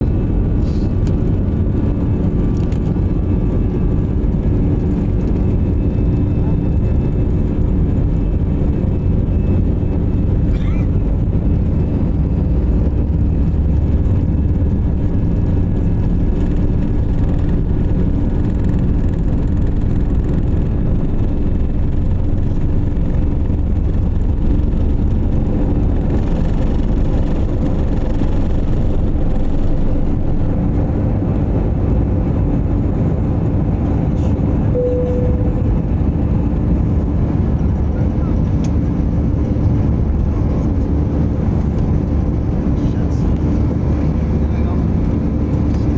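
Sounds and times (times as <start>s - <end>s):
aircraft cabin engine rumble: 0.0s - 45.9s
short tone: 34.7s - 36.0s.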